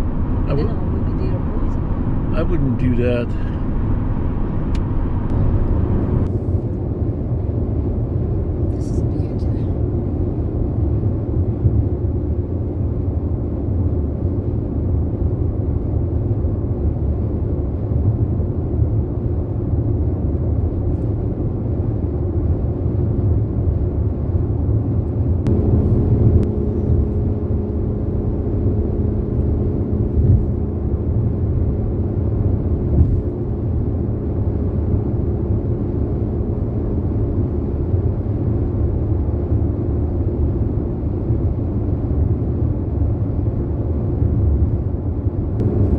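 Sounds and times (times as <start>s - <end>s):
road and engine rumble: 0.0s - 45.9s
steady hum: 25.2s - 40.8s, 45.4s - 45.9s.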